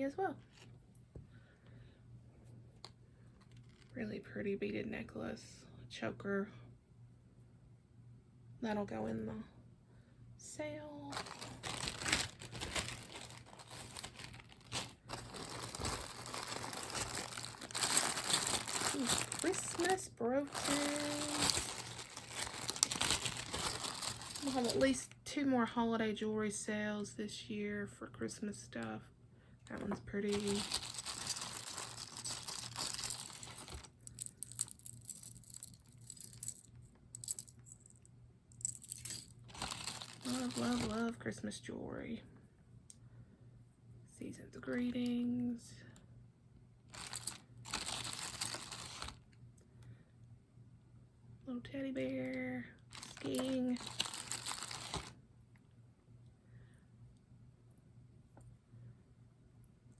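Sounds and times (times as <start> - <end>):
plastic bags crinkling: 11.1 - 25.0, 29.7 - 37.5, 38.7 - 41.1, 46.9 - 49.2, 52.9 - 55.2
metal brooches clinking: 20.6 - 25.0, 30.3 - 37.9, 38.6 - 40.8, 47.0 - 49.1, 53.0 - 55.1.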